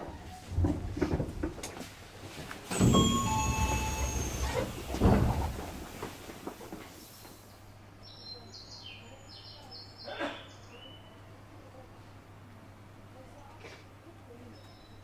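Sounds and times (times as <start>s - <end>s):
heavy thud: 2.7s - 6.3s.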